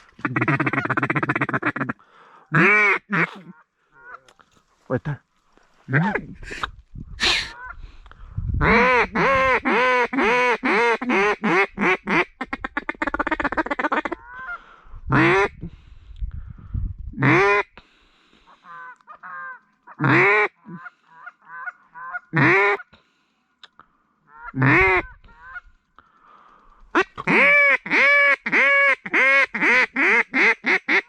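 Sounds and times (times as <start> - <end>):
waterfowl honking calls: 0.2 - 4.3, 18.5 - 22.9, 24.2 - 25.6, 26.9 - 31.0.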